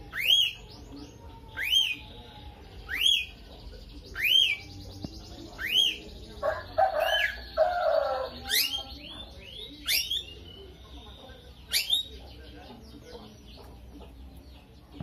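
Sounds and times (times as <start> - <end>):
bird squeaking: 0.0 - 0.8, 1.4 - 2.1, 2.8 - 3.4, 4.1 - 4.7, 5.6 - 10.8, 11.6 - 12.2
low buzzy bird chatter: 0.0 - 15.0.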